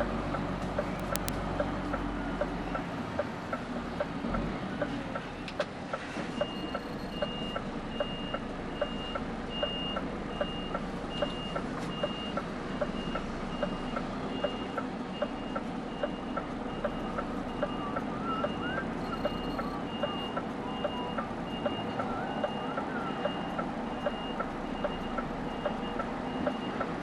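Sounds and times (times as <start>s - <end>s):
diesel engine humming: 0.0s - 27.0s
truck reversing alarm beeping: 1.0s - 1.3s, 6.3s - 27.0s.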